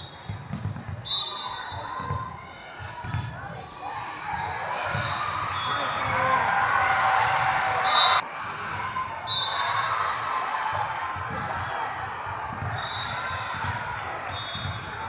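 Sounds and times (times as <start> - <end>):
volleyballs bouncing on gym floor: 0.2 - 1.1, 1.7 - 3.6, 10.8 - 15.0.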